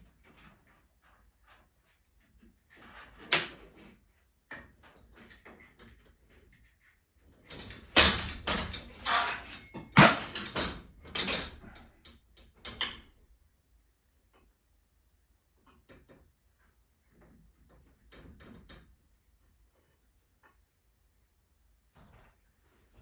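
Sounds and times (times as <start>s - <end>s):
metal knocks and clanks: 7.5s - 11.8s.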